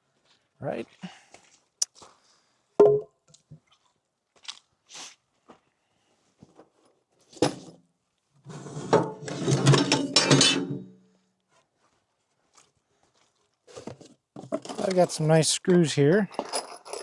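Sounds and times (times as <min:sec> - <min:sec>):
screws clinking and rattling in box: 0:08.8 - 0:10.9, 0:14.4 - 0:15.3, 0:16.2 - 0:17.0.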